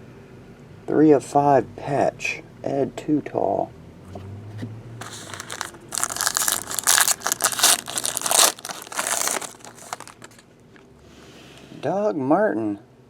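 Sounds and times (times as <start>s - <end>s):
foil wrapper crinkling: 5.0s - 10.5s.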